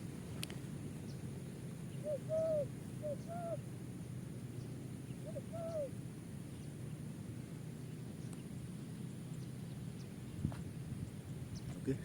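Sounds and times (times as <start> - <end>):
dove cooing: 2.0 - 3.7, 5.1 - 6.0.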